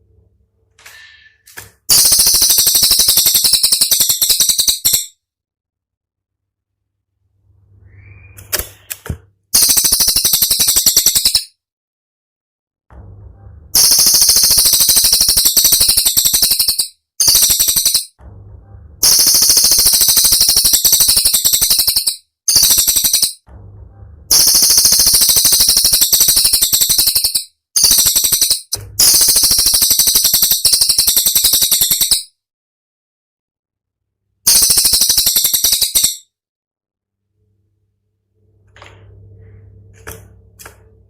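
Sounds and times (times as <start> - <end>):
songbird rattling trills: 1.9 - 5.1, 9.6 - 11.5, 13.8 - 18.1, 19.0 - 23.4, 24.3 - 32.3, 34.5 - 36.2.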